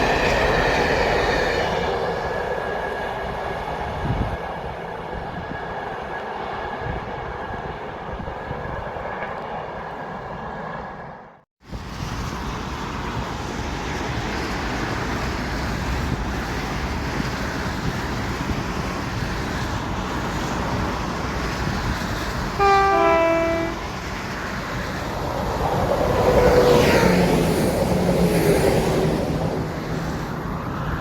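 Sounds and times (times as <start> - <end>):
train rumbling past: 0.0 - 31.0
two-tone train horn: 22.6 - 24.0.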